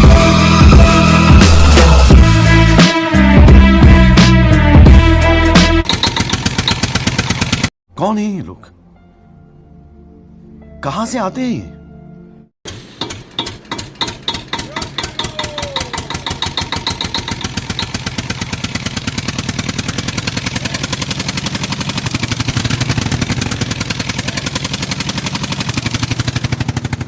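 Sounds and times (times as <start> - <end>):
tractor engine starting and chugging: 3.9 - 7.7, 12.7 - 27.0.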